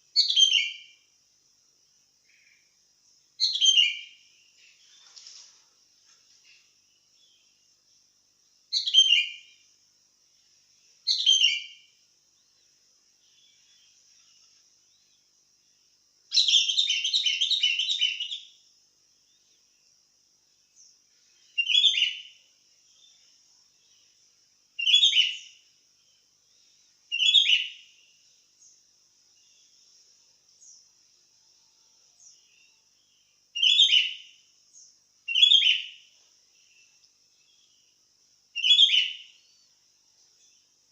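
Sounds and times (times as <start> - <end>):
faint high hiss: 0.0 - 40.9
bulbul singing: 32.2 - 38.0, 38.6 - 39.7.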